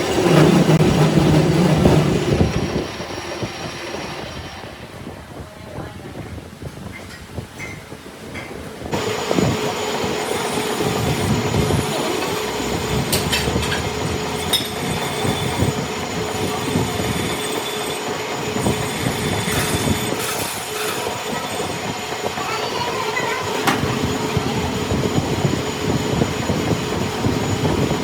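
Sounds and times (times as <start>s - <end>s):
metalworking machinery hum: 0.0s - 5.7s, 8.8s - 28.0s
metallic scraping and squealing: 9.4s - 27.9s.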